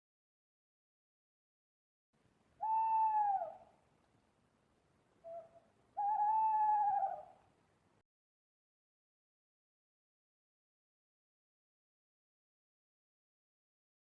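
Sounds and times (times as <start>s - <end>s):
owl hooting: 2.6s - 3.8s, 5.2s - 7.4s.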